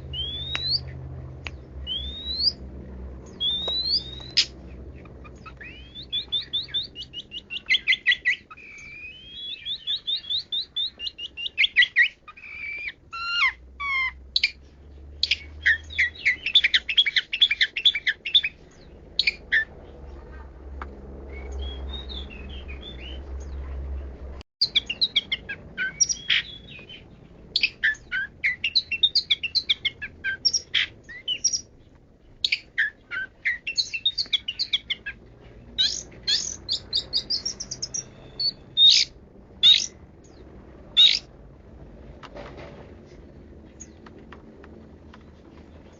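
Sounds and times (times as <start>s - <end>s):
shrike singing: 0.0s - 1.0s, 1.6s - 14.6s, 24.6s - 31.8s, 35.8s - 41.3s.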